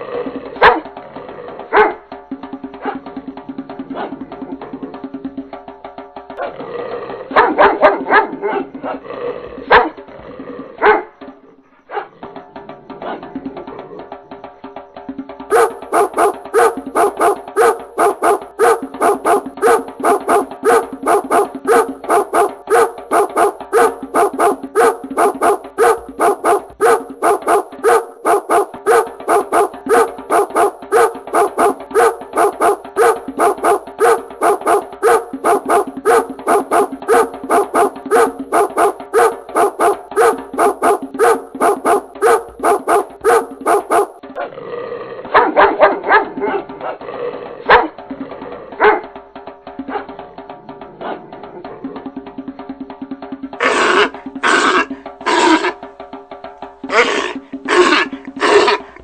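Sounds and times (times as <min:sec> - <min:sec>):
dog barking: 0:00.6 - 0:00.9, 0:01.7 - 0:02.0, 0:07.3 - 0:09.0, 0:09.7 - 0:10.0, 0:10.8 - 0:11.1, 0:11.9 - 0:12.2, 0:15.5 - 0:44.5, 0:45.3 - 0:47.0, 0:47.7 - 0:48.0, 0:48.8 - 0:49.1.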